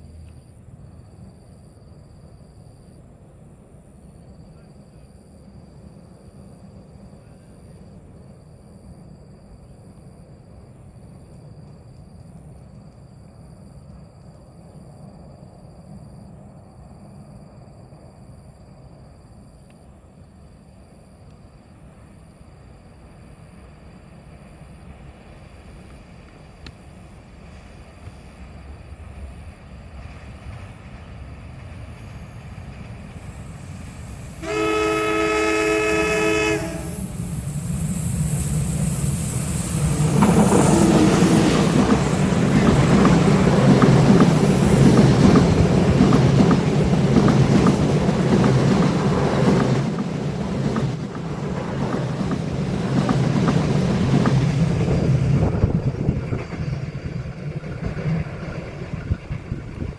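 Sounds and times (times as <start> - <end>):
train horn blast: 34.4 - 37.1
train wheels clacking on rails: 35.8 - 59.9.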